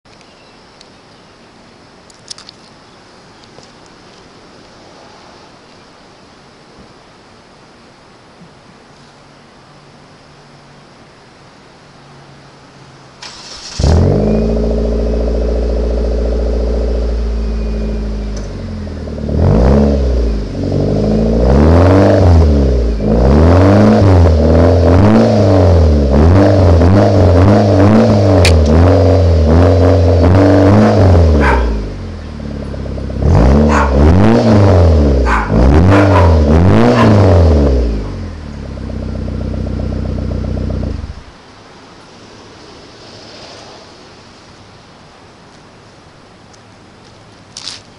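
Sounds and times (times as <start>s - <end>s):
car engine idling and revving: 13.2s - 43.2s.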